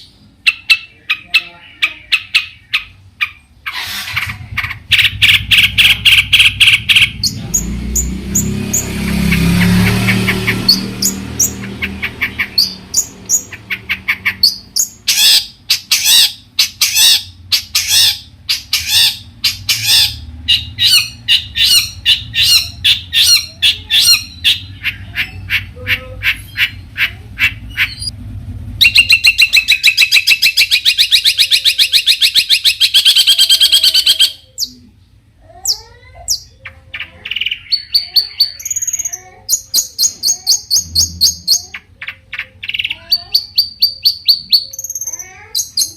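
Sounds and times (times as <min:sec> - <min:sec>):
bird chirping: 0:00.0 - 0:45.9
bird harsh rattle: 0:03.7 - 0:06.8.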